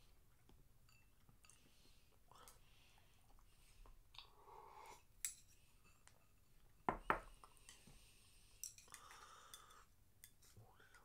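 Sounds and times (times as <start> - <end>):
ceramic bowl knocking on table: 6.9 - 7.3.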